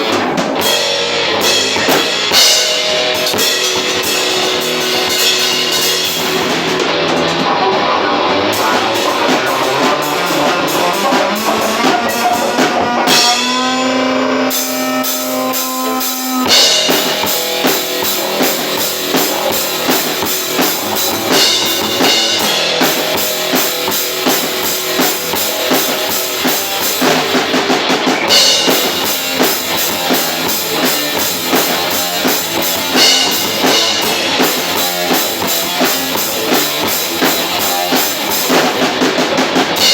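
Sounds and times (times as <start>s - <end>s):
drum kit playing: 0.0s - 39.9s
electric guitars: 0.0s - 39.9s
cymbals: 8.6s - 39.9s.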